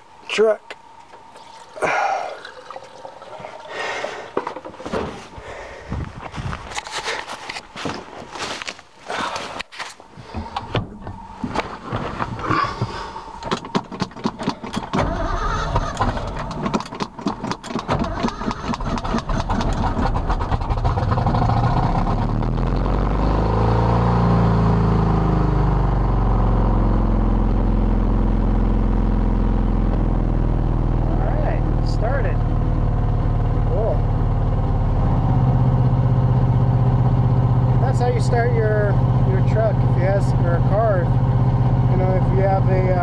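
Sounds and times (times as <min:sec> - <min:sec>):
truck engine cranking and starting: 0:12.3 - 0:27.0, 0:30.8 - 0:43.0
engine revving: 0:17.9 - 0:43.0.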